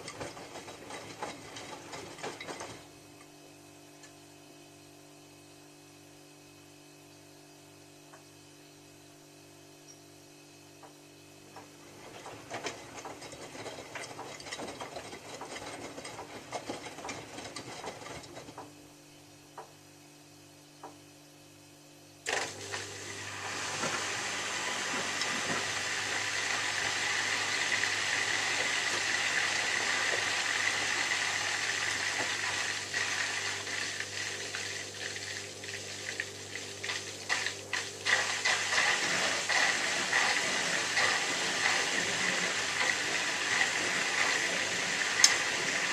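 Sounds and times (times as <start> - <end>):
washing machine running: 0.0 - 5.2, 10.8 - 19.7, 22.2 - 45.9
water rushing into drum: 22.5 - 45.9.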